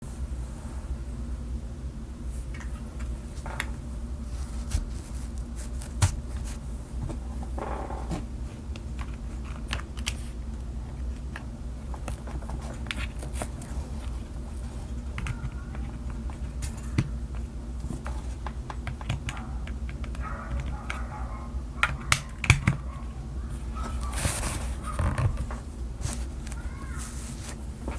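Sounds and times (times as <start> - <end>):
steady low hum: 0.0 - 27.9
mechanical keyboard typing: 15.0 - 17.1, 18.4 - 21.2, 21.8 - 22.8.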